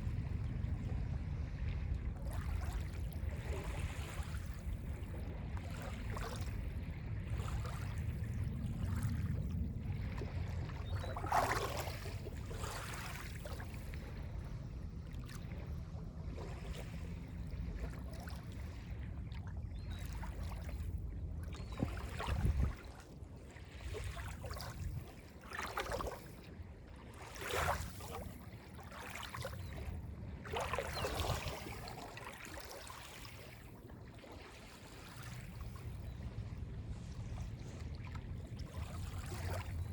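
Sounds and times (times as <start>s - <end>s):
low steady rumble: 0.0s - 27.2s, 35.2s - 39.9s
waves lapping on a beach: 0.0s - 39.9s.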